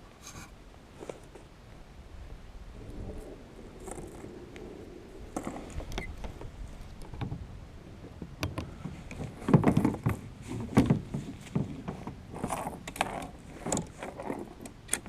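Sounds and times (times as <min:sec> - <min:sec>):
gear knocking against kayak hull: 0:08.2 - 0:15.0.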